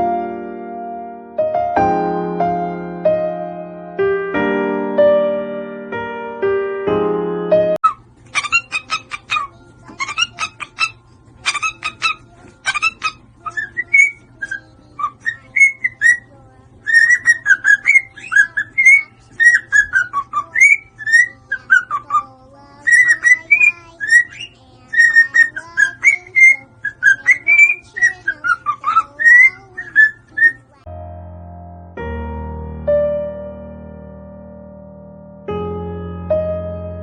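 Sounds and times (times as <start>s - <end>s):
bird whistling sliding notes: 7.8s - 30.8s.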